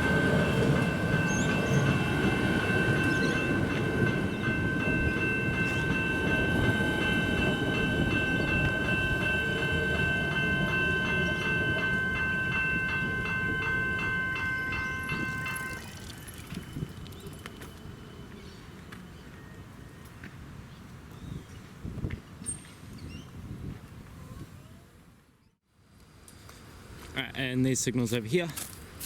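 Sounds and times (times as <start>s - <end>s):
level crossing bells ringing: 0.0s - 16.8s
train rumbling past: 0.0s - 20.6s.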